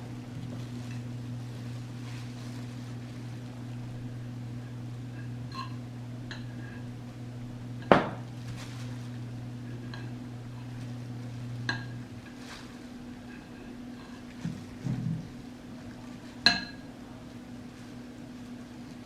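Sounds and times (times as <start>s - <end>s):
steady low hum: 0.0s - 19.0s
sharp knock on a counter: 7.9s - 8.2s.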